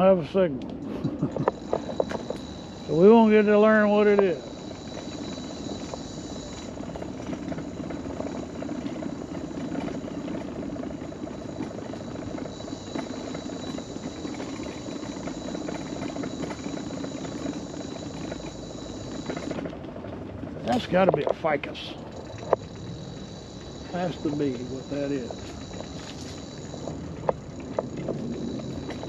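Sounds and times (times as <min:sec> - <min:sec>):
mobility scooter rolling: 0:00.1 - 0:29.0
high-pitched electric hum: 0:01.5 - 0:07.2.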